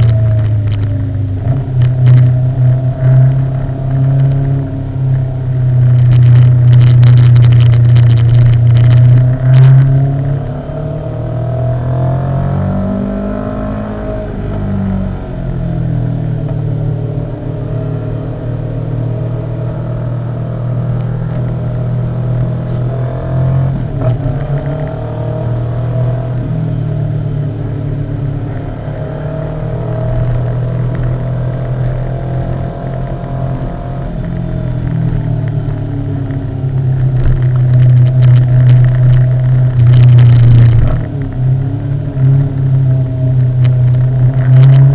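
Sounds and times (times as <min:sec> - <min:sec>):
motorcycle engine running: 0:00.0 - 0:10.5, 0:29.4 - 0:44.9.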